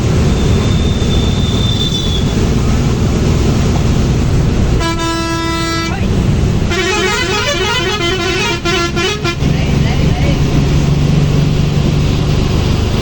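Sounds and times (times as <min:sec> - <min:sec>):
vehicle engine and road noise: 0:00.0 - 0:13.0
vehicle horn: 0:04.8 - 0:09.6.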